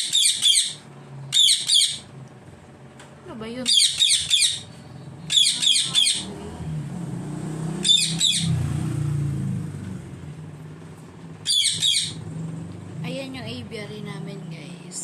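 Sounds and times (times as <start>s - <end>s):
birds chirping: 0.0s - 2.2s, 3.6s - 6.6s, 7.6s - 8.9s, 11.4s - 12.4s
low engine rumble: 0.0s - 15.0s.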